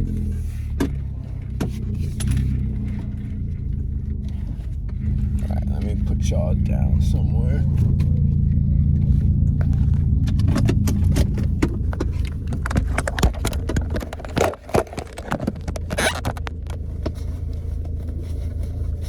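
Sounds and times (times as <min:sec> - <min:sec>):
car exhaust idling: 0:00.0 - 0:19.0
phone being handled: 0:09.5 - 0:19.0.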